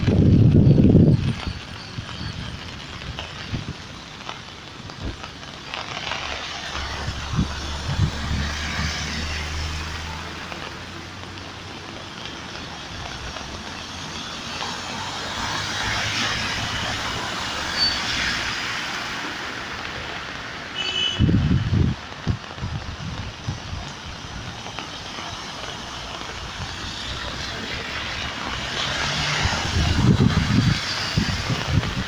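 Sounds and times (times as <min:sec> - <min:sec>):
heavy rain: 0:00.0 - 0:32.0
wet tyres hissing: 0:00.0 - 0:32.0.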